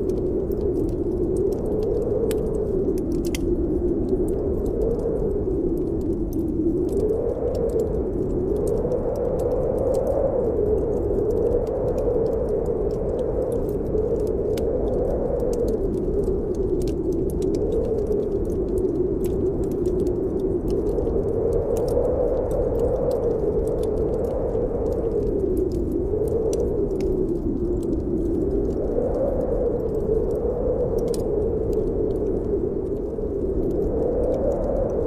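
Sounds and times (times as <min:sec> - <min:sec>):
snowstorm wind blowing: 0:00.0 - 0:35.0
wood fire crackling: 0:00.0 - 0:35.0.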